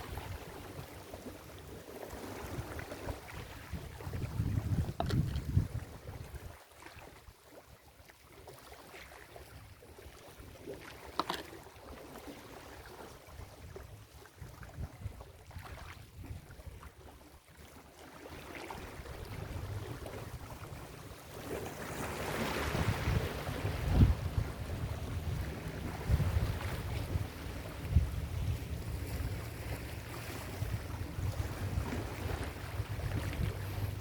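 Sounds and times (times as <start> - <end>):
wind rumbling on microphone: 0.0 - 6.6, 12.8 - 17.3, 18.7 - 34.0
ocean waves washing on beach: 0.0 - 7.2, 14.5 - 34.0.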